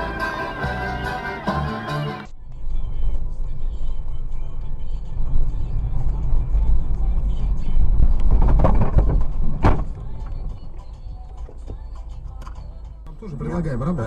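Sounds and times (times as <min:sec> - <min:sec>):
car rumbling on the road: 0:00.0 - 0:14.0
rough crackling noise: 0:02.3 - 0:12.7
sharp impact bang: 0:08.4 - 0:10.6.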